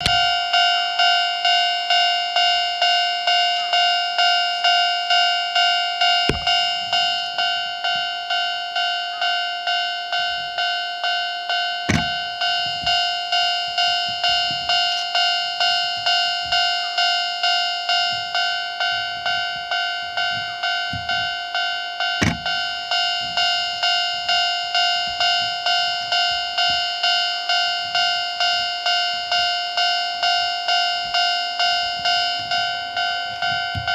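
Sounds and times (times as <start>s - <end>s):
level crossing warning bell: 0.0s - 33.9s.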